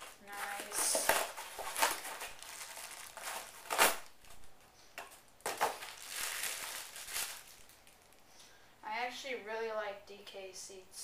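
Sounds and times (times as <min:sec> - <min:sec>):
cardboard and wrapping crinkling: 0:00.0 - 0:08.2.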